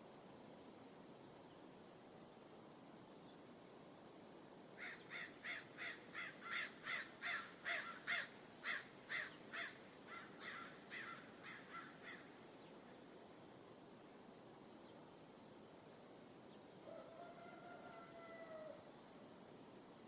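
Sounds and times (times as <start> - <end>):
bird calling: 4.8 - 12.4.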